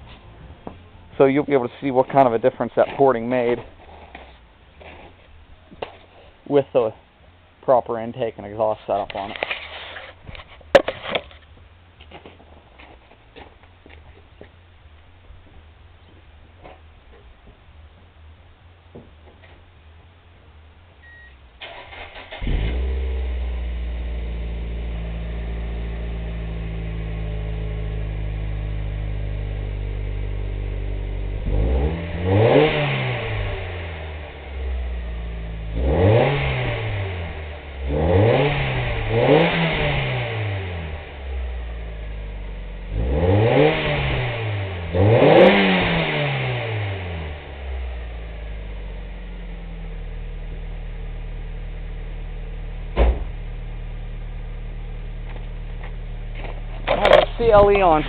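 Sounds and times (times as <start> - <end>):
car engine idling: 0.0 - 35.8, 47.0 - 58.0
car engine cranking: 21.0 - 24.7, 55.0 - 58.0
car engine revving: 21.6 - 58.0.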